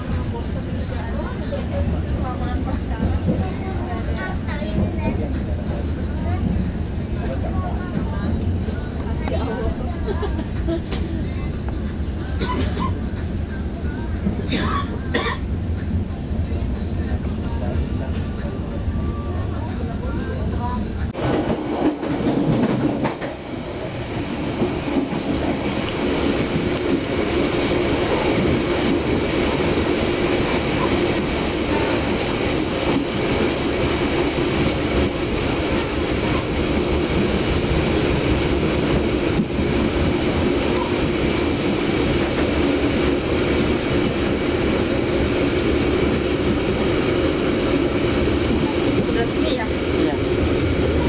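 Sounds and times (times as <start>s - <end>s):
train car rumbling and rattling: 0.0s - 51.0s
train wheels rolling on rails: 19.7s - 51.0s.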